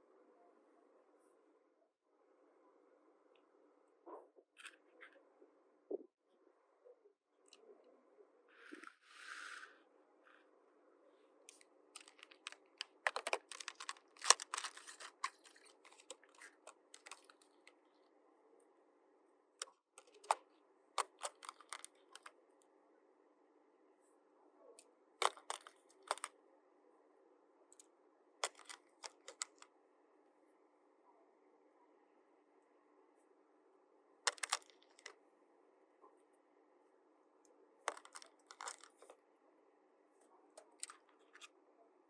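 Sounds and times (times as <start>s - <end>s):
plastic toy pieces clicking: 12.0s - 17.4s, 21.0s - 22.3s, 25.2s - 26.3s, 28.4s - 29.6s, 34.3s - 35.1s, 37.9s - 38.9s.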